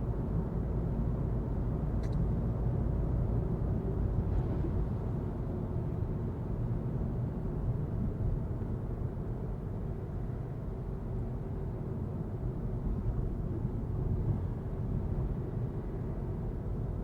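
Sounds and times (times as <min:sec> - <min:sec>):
car interior road and engine rumble: 0:00.0 - 0:17.0.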